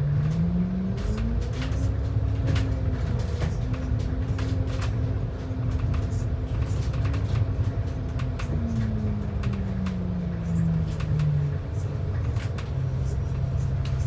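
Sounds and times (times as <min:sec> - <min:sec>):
bus engine rumble and whine: 0:00.0 - 0:14.0.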